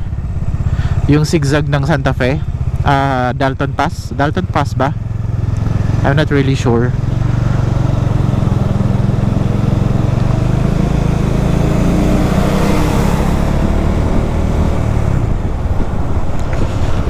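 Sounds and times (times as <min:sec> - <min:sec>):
motorcycle engine running: 0:00.0 - 0:17.0
wind rush on microphone: 0:12.0 - 0:17.0.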